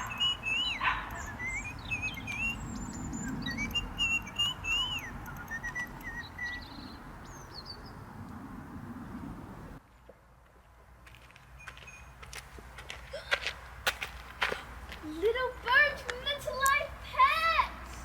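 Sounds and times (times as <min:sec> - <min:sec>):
birds chirping and whistling: 0:00.0 - 0:08.1.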